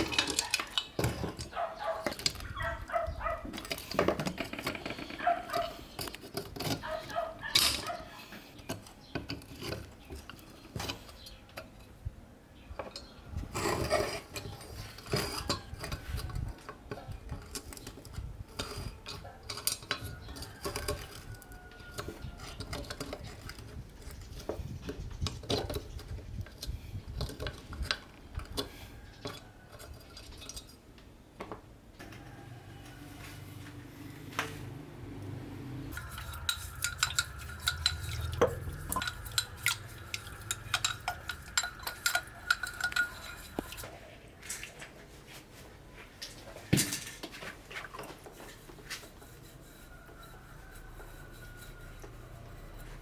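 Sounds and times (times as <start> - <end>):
metal lamp parts clinking: 0.0 - 11.9, 35.9 - 44.8
steady hum: 35.9 - 43.9.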